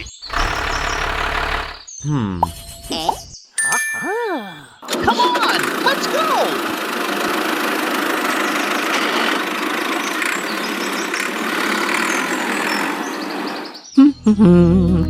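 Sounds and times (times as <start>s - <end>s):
small motor running rattly: 0.2s - 1.9s, 5.6s - 12.4s.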